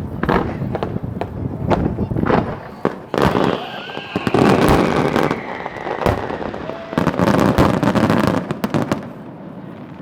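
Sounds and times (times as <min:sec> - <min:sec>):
fireworks bangs and crackling: 0:00.0 - 0:10.0
firework falling whistle: 0:02.3 - 0:07.8.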